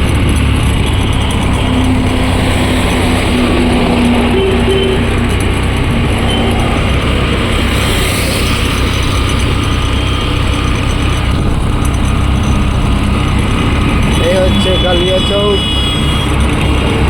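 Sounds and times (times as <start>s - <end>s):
road noise: 0.0s - 17.0s
vehicle engine: 0.0s - 17.0s.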